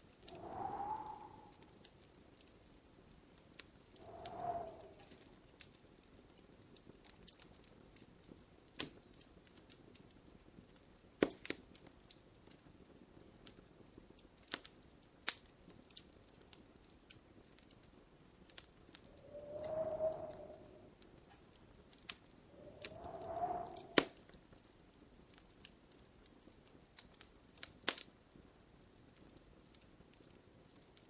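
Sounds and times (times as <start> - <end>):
faint hiss: 0.0 - 2.1, 3.6 - 5.5, 18.9 - 21.4, 22.0 - 24.4
wood fire crackling: 0.0 - 31.0.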